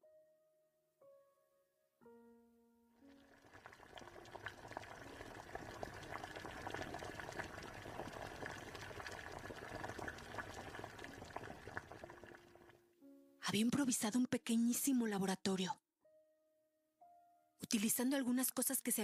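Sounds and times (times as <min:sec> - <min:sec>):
liquid boiling and bubbling: 0:03.1 - 0:12.8.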